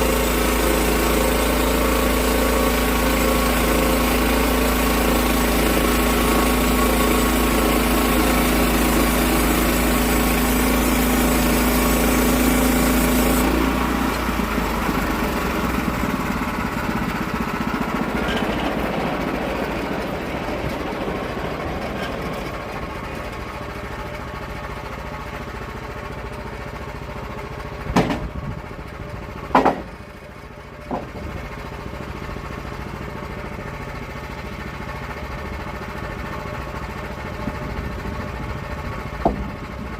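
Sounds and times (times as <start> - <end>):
saw engine running: 0.0 - 39.9
sharp knocks: 27.9 - 28.3, 29.5 - 30.0.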